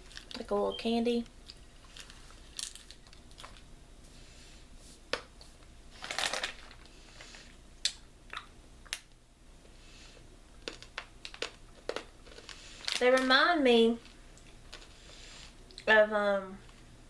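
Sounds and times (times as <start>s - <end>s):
packaging crinkling: 0.0s - 0.5s, 1.4s - 3.7s, 5.9s - 7.5s, 10.6s - 13.3s
sharp clicks of hard candies: 10.6s - 13.3s.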